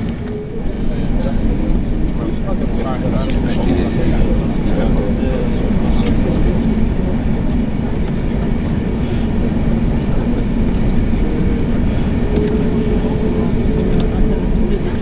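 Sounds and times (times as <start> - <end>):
faint high tone: 0.0 - 2.3
airliner cabin rumble: 0.0 - 15.0.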